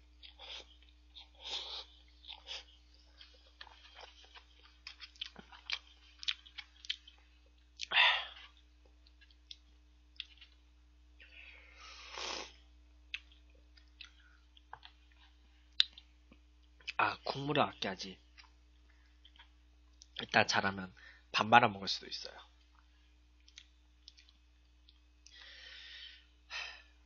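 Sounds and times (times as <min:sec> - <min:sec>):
person chewing noodles: 0:00.1 - 0:10.6, 0:11.9 - 0:17.0, 0:18.3 - 0:20.2, 0:22.7 - 0:25.5.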